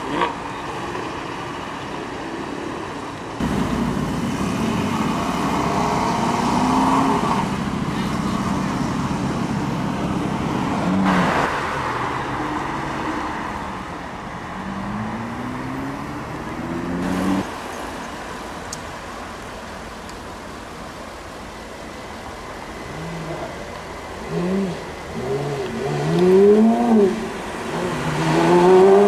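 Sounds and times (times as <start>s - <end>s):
road noise: 0.0s - 29.0s
sports car accelerating: 3.4s - 17.5s, 22.8s - 29.0s
sports car engine revving: 14.6s - 17.5s, 22.8s - 29.0s.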